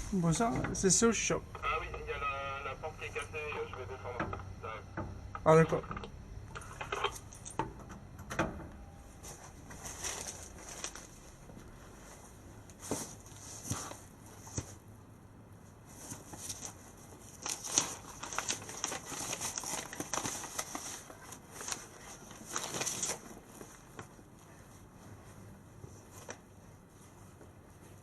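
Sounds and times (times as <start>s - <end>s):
rustling: 8.7s - 14.8s, 15.7s - 28.0s.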